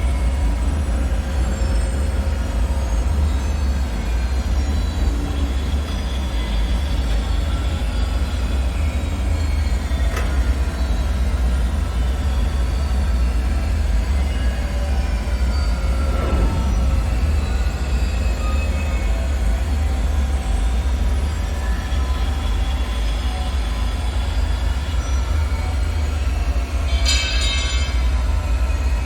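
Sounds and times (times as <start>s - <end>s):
deep steady rumble: 0.0s - 23.0s.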